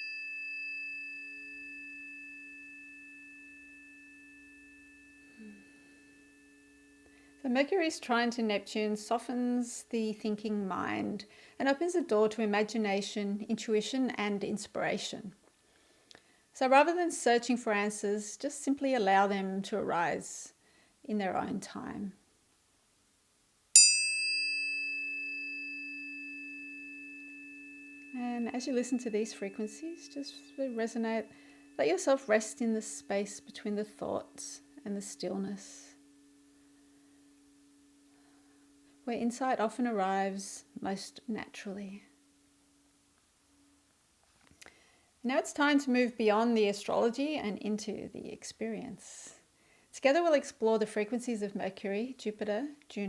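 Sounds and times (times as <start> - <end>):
tuning forks ringing: 0.0 - 9.6, 23.8 - 43.9.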